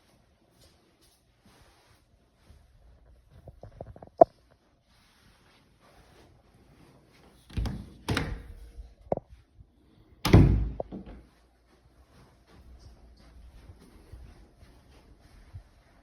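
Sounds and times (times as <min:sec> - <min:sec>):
door thuds: 0:10.3 - 0:11.2.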